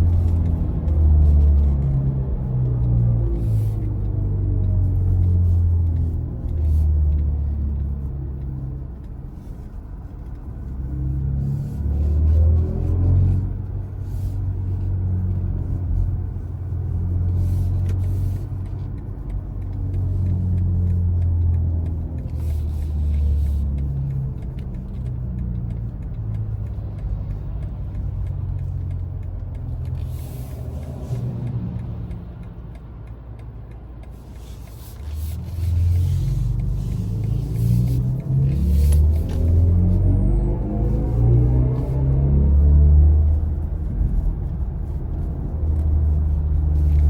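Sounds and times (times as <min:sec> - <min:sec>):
road rumble: 0:00.0 - 0:47.0.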